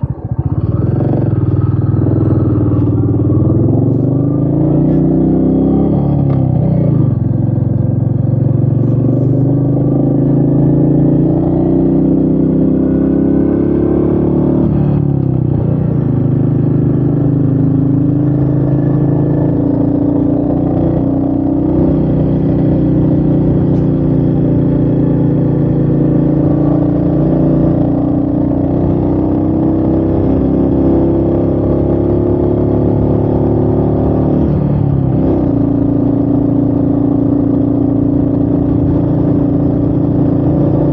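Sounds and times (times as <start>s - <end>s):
motorcycle engine running under load: 0.0s - 40.9s.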